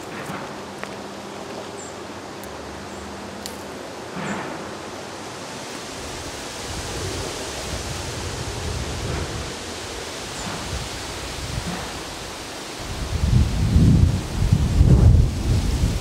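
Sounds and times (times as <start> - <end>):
storm rushing noise: 5.9 - 16.0.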